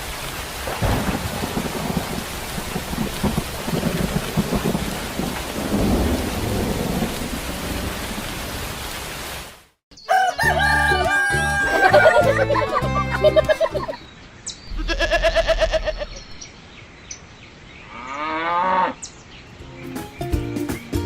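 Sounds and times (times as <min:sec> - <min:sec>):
steady rain: 0:00.0 - 0:09.8
low rolling thunder: 0:00.6 - 0:08.8
music: 0:10.4 - 0:14.0, 0:19.6 - 0:21.0.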